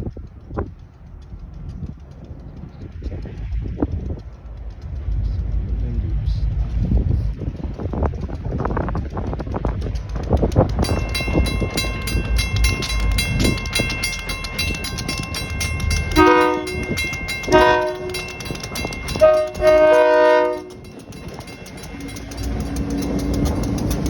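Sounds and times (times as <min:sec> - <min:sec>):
locomotive engine rumble: 0:00.1 - 0:24.0
locomotive bell ringing: 0:10.6 - 0:24.0
chime air horn blasts: 0:11.1 - 0:22.2.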